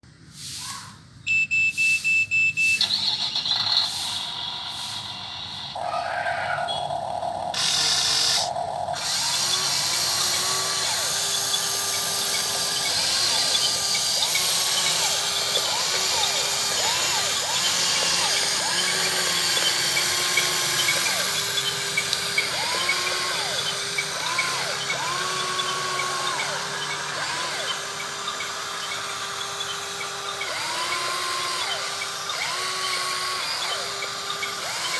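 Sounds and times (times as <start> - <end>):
short electronic tones: 1.3 - 3.2
small electric motors whining: 2.8 - 34.9.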